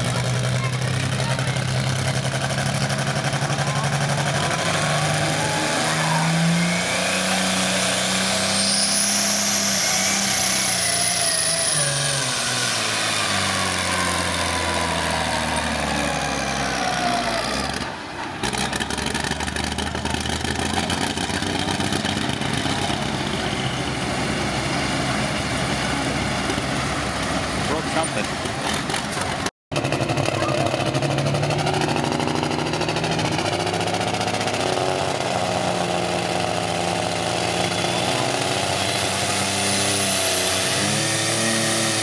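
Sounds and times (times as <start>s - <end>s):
diesel engine under load: 0.0s - 42.0s
high whistle: 8.5s - 12.0s.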